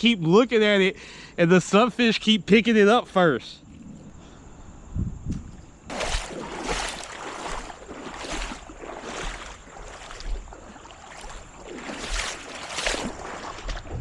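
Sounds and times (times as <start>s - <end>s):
wading through creek water: 5.9s - 14.0s.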